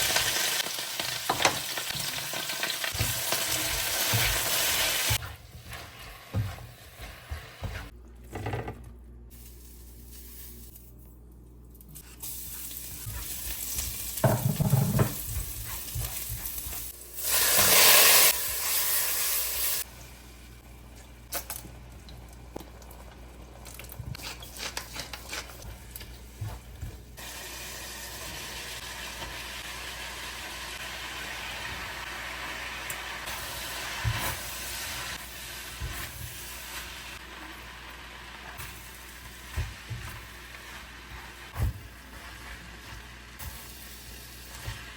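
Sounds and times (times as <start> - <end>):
food sizzling in a pan: 0.0 - 7.9, 12.1 - 19.9, 27.2 - 44.9.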